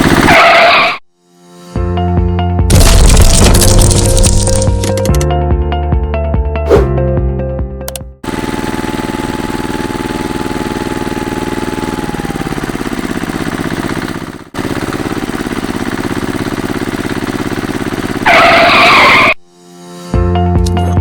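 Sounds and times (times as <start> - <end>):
small engine puttering: 8.2 - 19.4.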